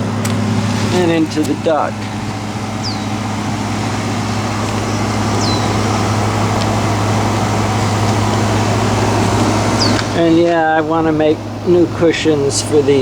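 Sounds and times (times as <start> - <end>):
air conditioner humming: 0.0 - 13.0
high falling chirps: 2.0 - 10.2.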